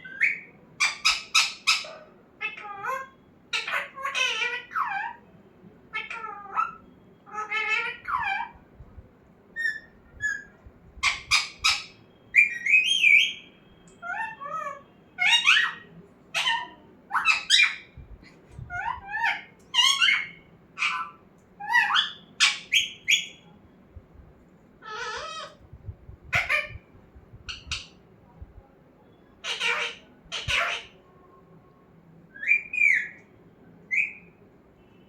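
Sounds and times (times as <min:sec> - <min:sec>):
parrot squawking and whistling: 0:09.6 - 0:18.0, 0:18.7 - 0:23.4, 0:24.8 - 0:25.6, 0:26.3 - 0:26.8, 0:27.4 - 0:28.0, 0:29.4 - 0:31.0, 0:32.3 - 0:33.2, 0:33.9 - 0:34.3.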